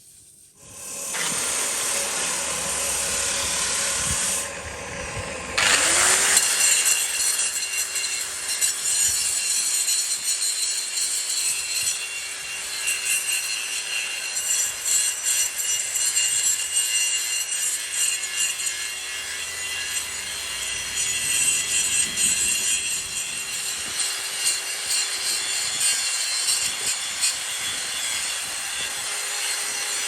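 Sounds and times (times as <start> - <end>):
metal cutting rasp: 0.6 - 4.5, 5.6 - 30.0
machine hum: 0.6 - 6.4.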